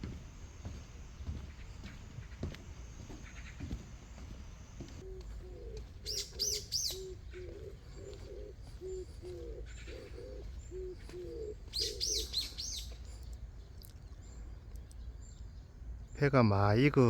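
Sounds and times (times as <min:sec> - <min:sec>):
songbird chirping: 0:00.0 - 0:17.0
dove cooing: 0:05.0 - 0:13.0.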